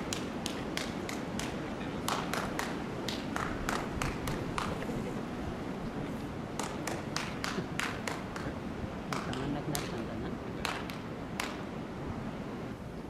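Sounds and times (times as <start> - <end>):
orangutan clapping hands: 0.0 - 5.0, 6.5 - 11.7
wind rumble on microphone: 0.0 - 13.0.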